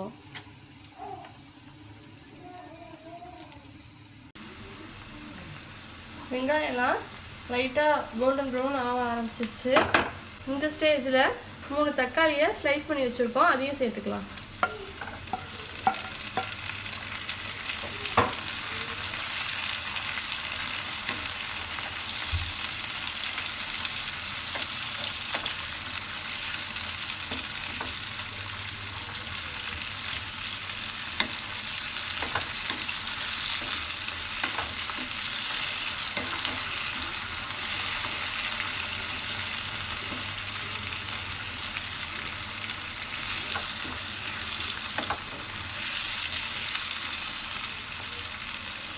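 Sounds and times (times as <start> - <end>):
vegetables sizzling in oil: 0.0 - 48.9.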